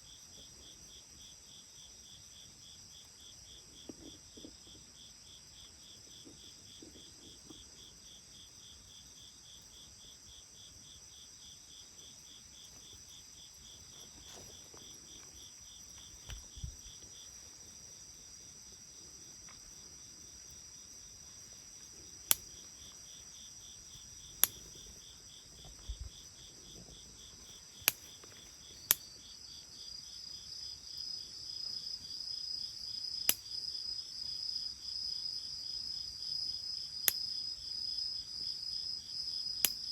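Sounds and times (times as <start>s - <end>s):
insect pulsed chirp: 0.0s - 39.9s
insects chirping: 0.0s - 39.9s
bonfire wood popping: 13.7s - 17.4s, 23.8s - 29.0s.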